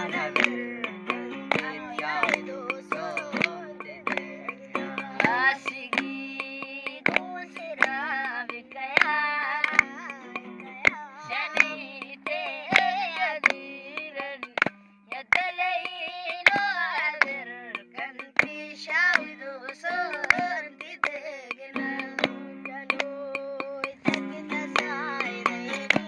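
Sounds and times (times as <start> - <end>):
person singing ornamented melody: 0.0 - 14.6
sharp percussive strikes: 0.0 - 26.0.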